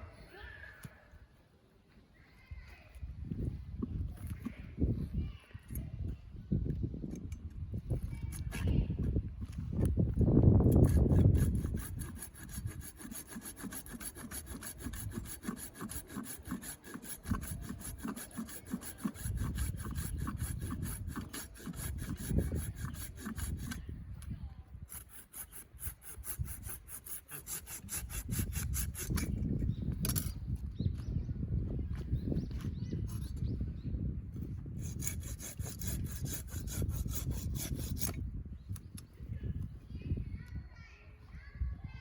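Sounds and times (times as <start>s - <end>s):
hand saw cutting wood: 10.6s - 23.9s, 24.8s - 29.4s, 34.8s - 38.2s.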